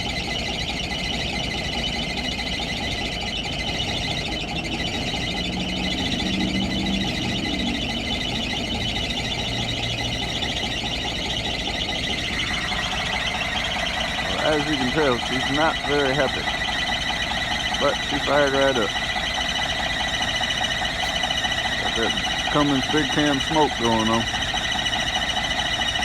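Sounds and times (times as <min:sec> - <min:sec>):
diesel engine idling rough: 0:00.0 - 0:26.0
drive belts squealing: 0:00.0 - 0:26.0.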